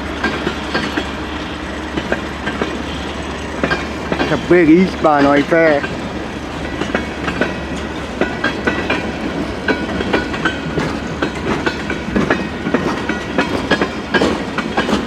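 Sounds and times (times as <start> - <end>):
freight train rolling past: 0.0 - 15.0
wheels clicking over rail joints: 0.0 - 15.0.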